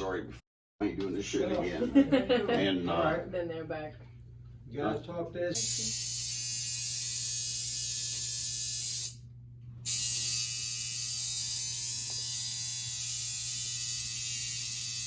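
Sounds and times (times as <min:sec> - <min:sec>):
tattoo machine buzzing: 0:05.6 - 0:15.0.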